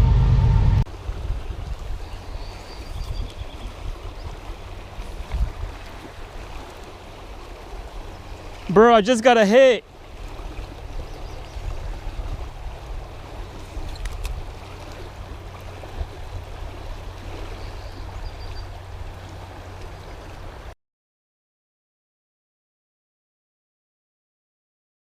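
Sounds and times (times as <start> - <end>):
river water rushing: 0.9 - 20.7.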